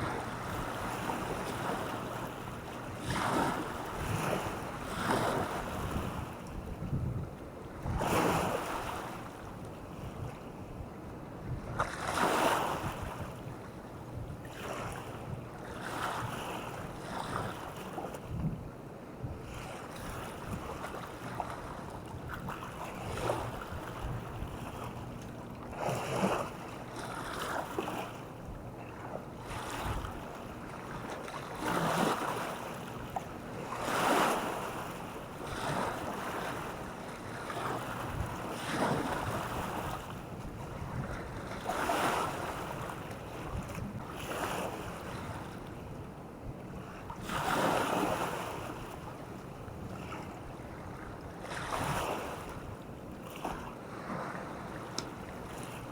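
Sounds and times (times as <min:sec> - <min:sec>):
wind buffeting microphone: 0:00.0 - 0:09.0, 0:22.0 - 0:24.9, 0:37.6 - 0:45.6
small waves washing ashore: 0:00.0 - 0:18.4, 0:19.4 - 0:55.9.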